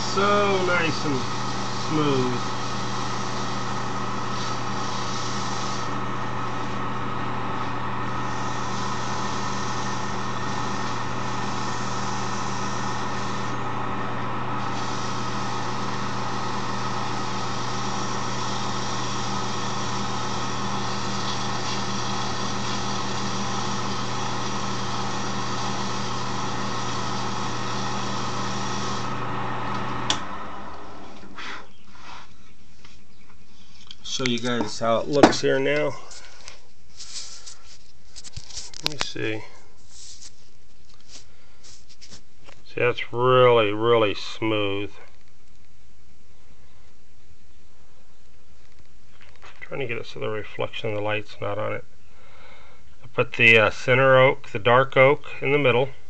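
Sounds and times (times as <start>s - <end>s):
sanding pad hissing on wood: 0.0s - 6.7s, 8.1s - 13.6s, 14.6s - 29.2s, 31.2s - 32.3s
lathe motor humming: 0.0s - 31.4s.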